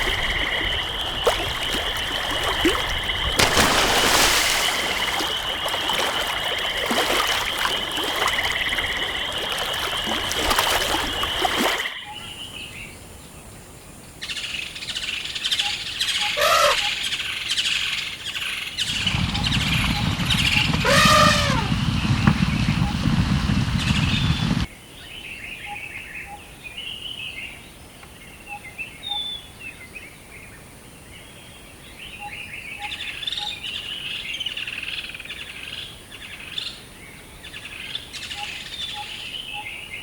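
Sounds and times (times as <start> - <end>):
low rumble: 18.9 - 24.7.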